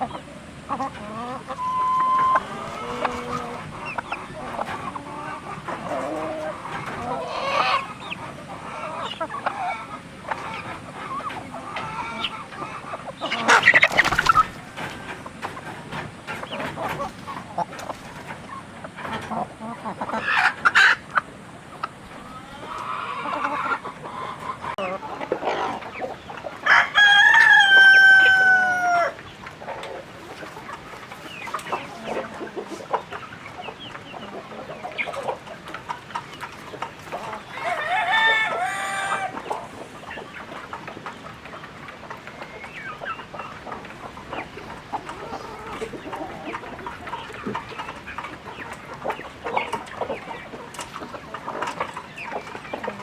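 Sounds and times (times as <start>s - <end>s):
chickens clucking: 0.0s - 53.0s
rooster crowing: 26.6s - 29.2s, 37.5s - 39.4s.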